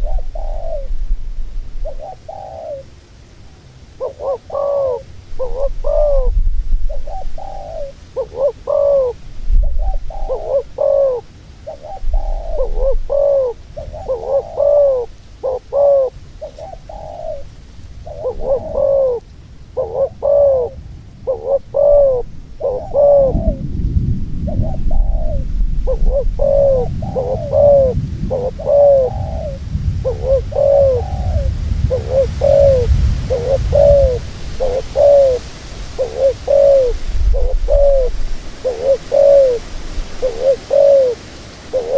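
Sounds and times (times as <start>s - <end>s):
dove cooing: 0.0s - 3.1s, 3.9s - 41.9s
low rumble: 23.3s - 35.0s.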